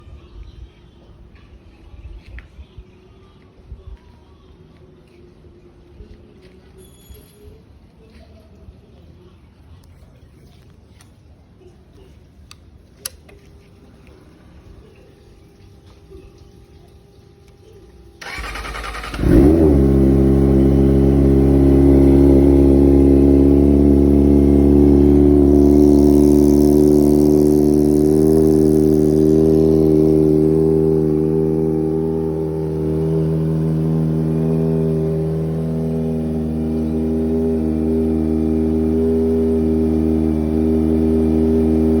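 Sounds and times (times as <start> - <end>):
motorcycle engine revving and idling: 17.0 - 42.0
starter motor cranking: 18.2 - 21.4.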